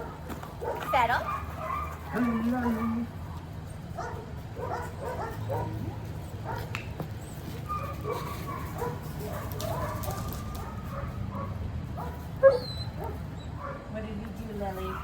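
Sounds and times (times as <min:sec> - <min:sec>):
dog yipping and barking: 0:00.0 - 0:06.7, 0:07.6 - 0:13.9
dog whining: 0:12.4 - 0:13.6.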